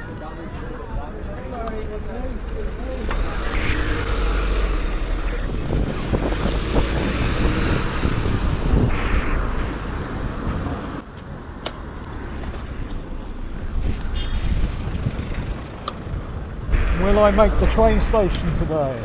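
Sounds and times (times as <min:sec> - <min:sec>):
low traffic rumble: 0:00.0 - 0:19.0
car passing: 0:02.4 - 0:11.0.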